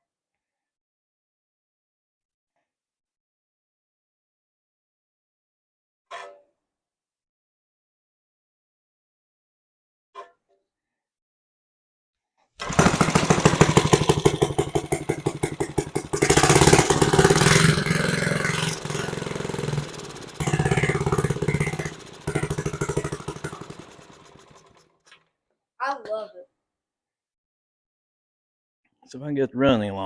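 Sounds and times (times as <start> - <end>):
lawn mower engine running rough: 12.6 - 24.8.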